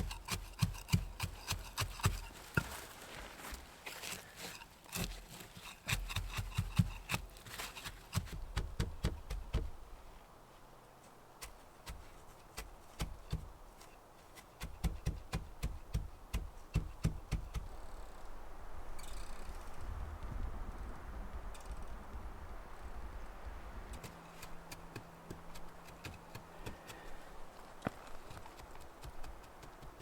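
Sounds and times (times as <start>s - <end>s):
knocks and taps from hand work: 7.9s - 9.7s.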